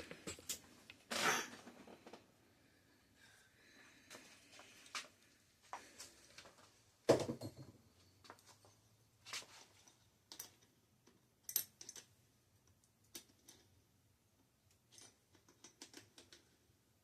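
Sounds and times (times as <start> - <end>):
tools clicking and knocking: 9.8 - 12.2, 14.7 - 16.6
small metal clinks: 11.4 - 12.1.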